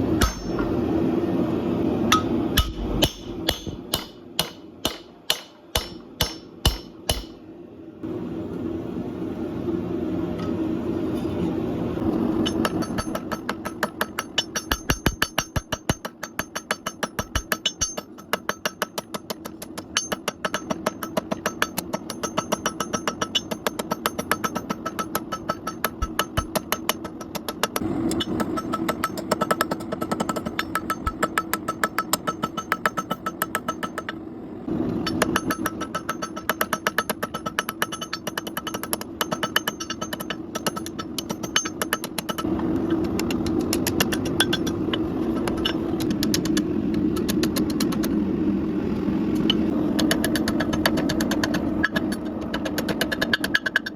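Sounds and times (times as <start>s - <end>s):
machine hum: 0.0s - 13.8s, 39.5s - 52.8s.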